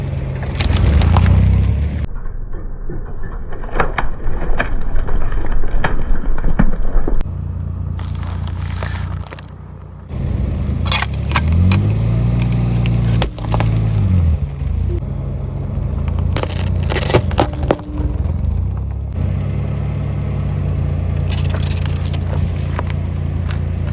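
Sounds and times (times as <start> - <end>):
car engine humming: 0.0 - 2.1, 7.2 - 23.9.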